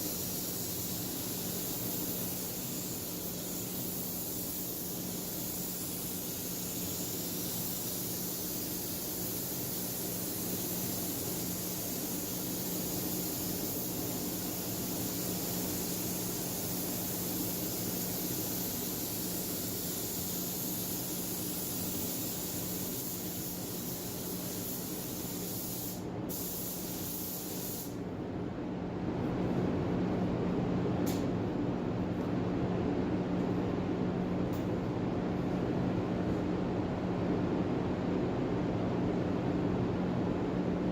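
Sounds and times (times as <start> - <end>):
paint spray gun hissing: 0.0 - 28.0.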